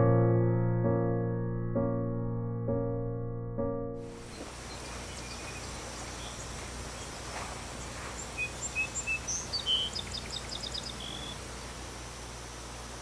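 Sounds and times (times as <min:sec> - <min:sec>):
outdoor background hiss: 0:04.0 - 0:13.0
bird calling: 0:04.2 - 0:11.9.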